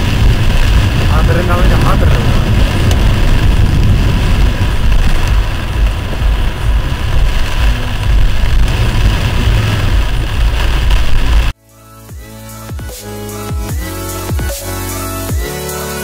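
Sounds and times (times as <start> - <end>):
car engine rumble: 0.0 - 11.6
road noise: 0.0 - 11.6.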